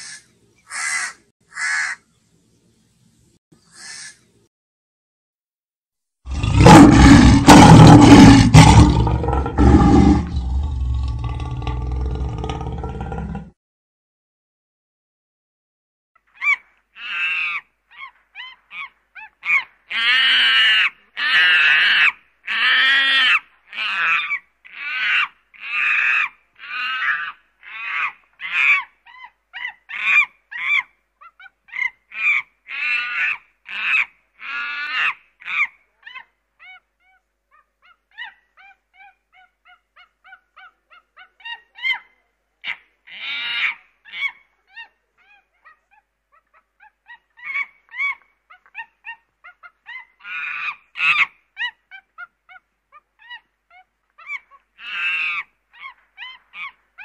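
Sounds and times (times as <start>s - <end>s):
monkeys calling: 16.4s - 57.0s.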